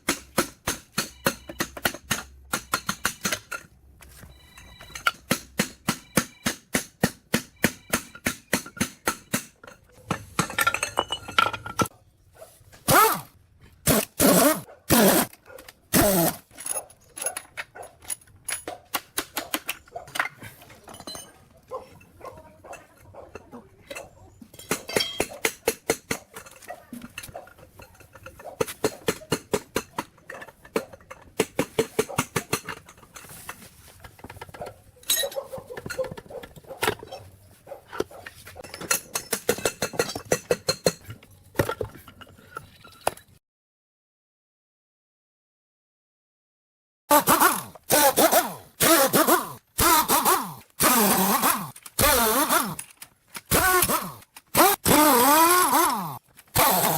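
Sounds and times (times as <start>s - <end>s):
metal tools tapping machine parts: 0.0s - 3.8s, 4.5s - 11.9s, 16.5s - 37.3s, 37.9s - 43.3s.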